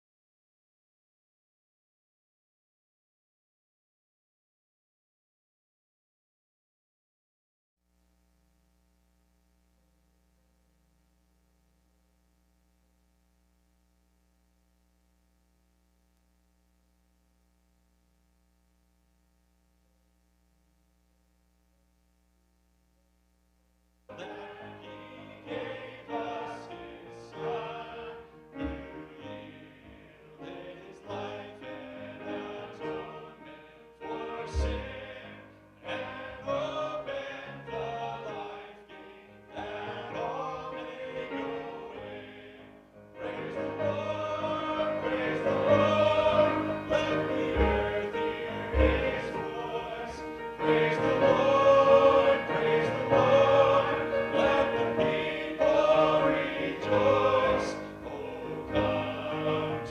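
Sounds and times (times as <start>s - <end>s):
vocal ensemble singing: 24.1s - 59.9s.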